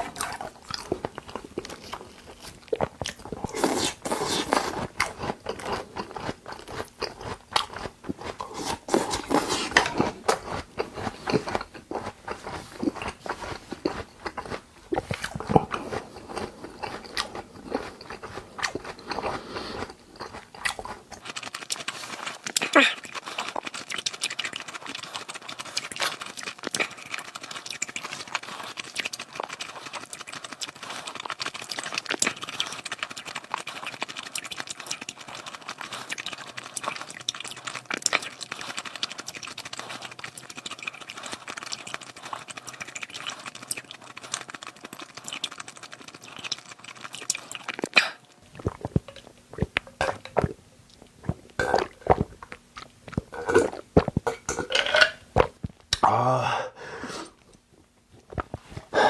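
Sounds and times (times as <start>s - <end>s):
mouth chewing clicks and smacks: 0.0s - 56.1s, 57.4s - 59.0s.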